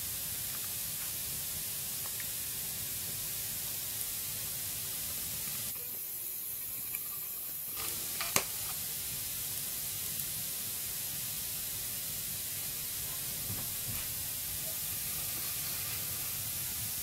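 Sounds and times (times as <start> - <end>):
fire crackles: 0.0 - 17.0
wood fire hissing: 0.0 - 17.0
fire sharp pop: 7.8 - 8.8.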